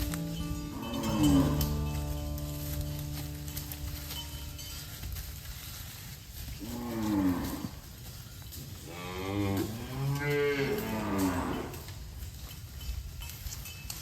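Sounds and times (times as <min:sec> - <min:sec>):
cattle mooing: 0:00.1 - 0:04.2, 0:06.6 - 0:07.8, 0:08.9 - 0:11.9.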